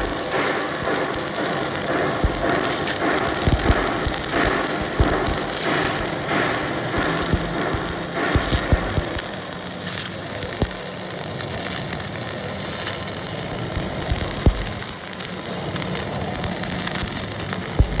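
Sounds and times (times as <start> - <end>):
sharp pops: 0.0 - 9.5
welding arc crackling: 0.0 - 18.0.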